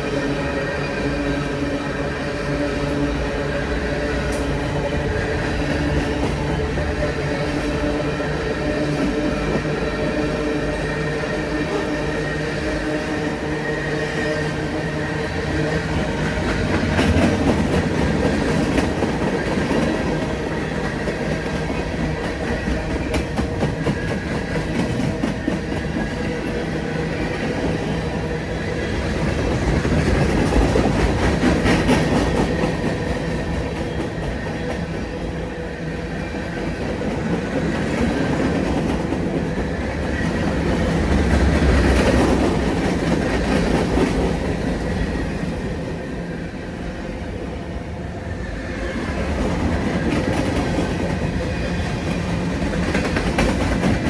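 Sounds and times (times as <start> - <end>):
train wheels clicking over rail joints: 2.8 - 8.0, 14.4 - 35.4, 36.2 - 45.9, 49.0 - 54.0.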